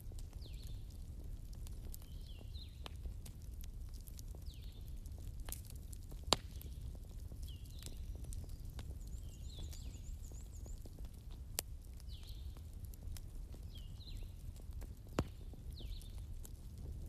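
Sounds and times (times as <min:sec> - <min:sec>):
campfire crackling: 0:00.0 - 0:17.0
fire pop: 0:04.2 - 0:17.0.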